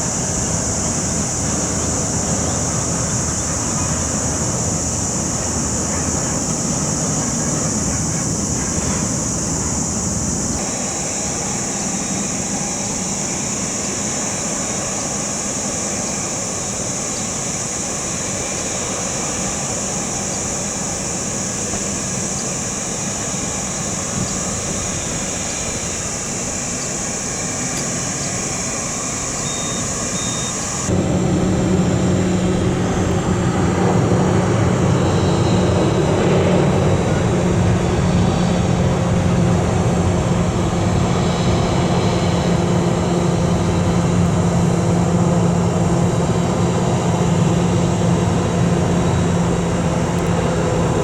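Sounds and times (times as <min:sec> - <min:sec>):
deep engine rumble: 0:00.0 - 0:51.0
jet engines whining: 0:00.0 - 0:51.0.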